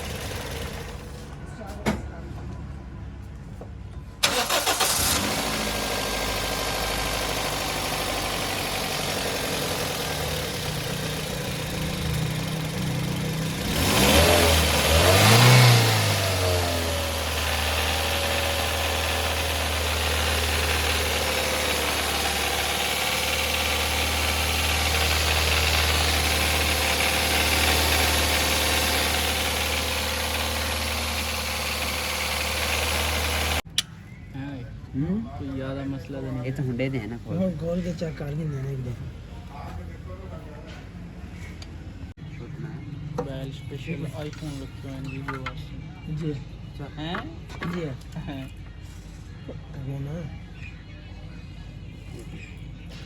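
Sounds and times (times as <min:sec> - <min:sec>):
car engine starting and revving: 0:04.2 - 0:33.6.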